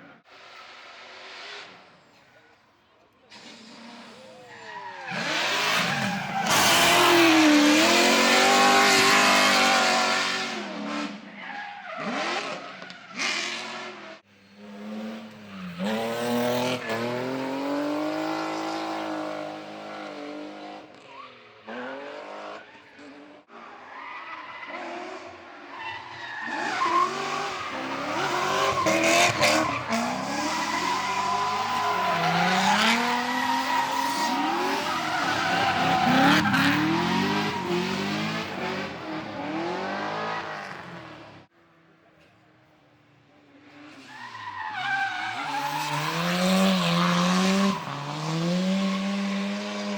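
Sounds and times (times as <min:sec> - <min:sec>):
tires skidding: 0:03.3 - 0:41.4, 0:43.7 - 0:49.9
car engines revving high: 0:05.0 - 0:11.3, 0:26.4 - 0:41.5, 0:45.0 - 0:49.9.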